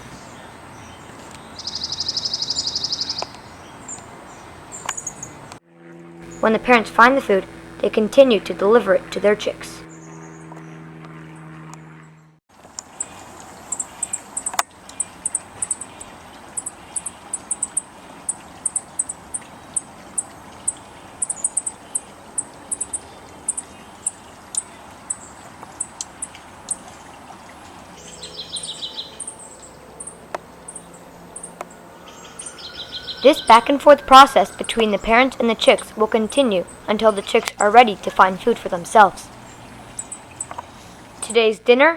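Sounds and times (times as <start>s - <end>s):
lower bird call: 0.0s - 5.4s, 28.0s - 37.2s
high-pitched bird chip notes: 15.2s - 16.0s, 16.6s - 19.9s, 21.2s - 23.7s, 30.0s - 40.5s
outdoor hiss: 33.1s - 41.7s.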